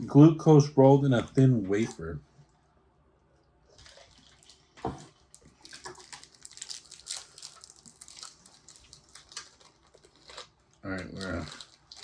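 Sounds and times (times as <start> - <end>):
plastic wrapper crinkling and tearing: 3.7 - 12.0.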